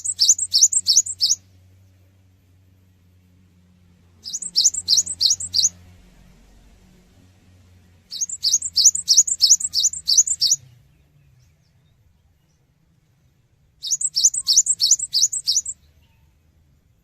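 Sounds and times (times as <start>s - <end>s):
bird singing high sliding notes: 0.0s - 1.4s, 4.2s - 5.8s, 8.1s - 10.8s, 13.8s - 15.9s.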